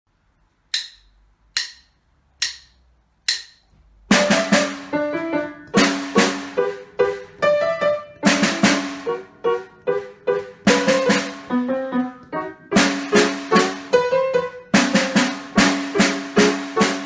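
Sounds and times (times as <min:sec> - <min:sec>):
sharp clicks count-in: 0:00.7 - 0:03.7
brisk lively piano piece: 0:04.1 - 0:17.0.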